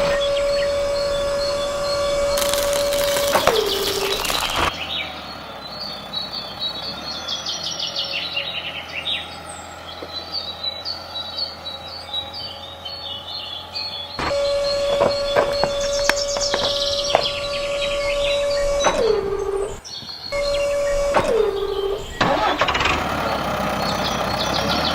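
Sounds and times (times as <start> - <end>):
steady whine: 0.0 - 4.7, 14.2 - 22.8
bird trill: 0.0 - 22.6
birds chirping: 0.0 - 24.9
clicks: 14.2 - 19.8, 20.4 - 23.0.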